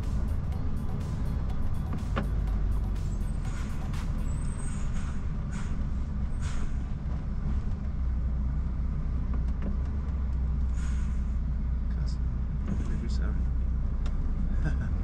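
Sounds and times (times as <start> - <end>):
lorry diesel engine running: 0.0 - 15.0
air brake hisses: 4.4 - 6.9, 10.7 - 11.4.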